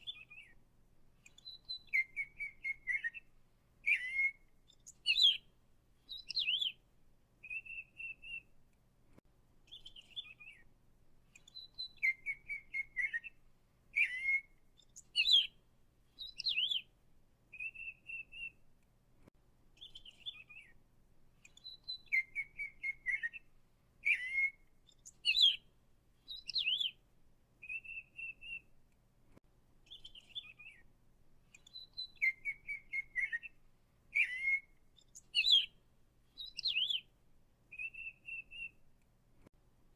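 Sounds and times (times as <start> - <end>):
songbird singing: 0.0 - 8.8, 9.6 - 18.9, 19.7 - 28.9, 29.7 - 39.1.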